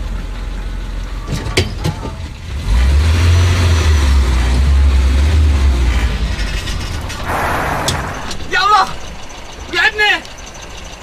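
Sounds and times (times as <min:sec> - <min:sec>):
car engine revving: 0:02.4 - 0:09.7.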